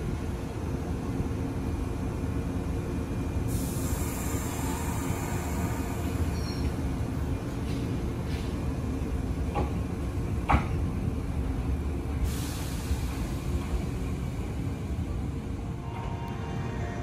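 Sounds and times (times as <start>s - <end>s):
electric train rumble and hum: 0.0s - 17.0s
train hiss: 3.3s - 8.7s, 12.1s - 17.0s.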